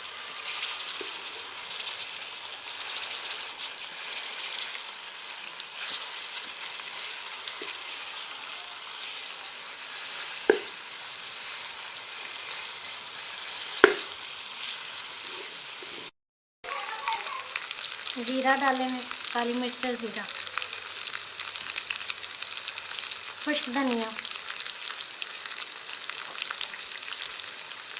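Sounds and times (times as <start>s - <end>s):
chicken sizzling in hot oil: 0.0s - 16.1s, 16.7s - 27.9s
sharp knocks: 10.5s - 10.8s, 13.8s - 14.1s.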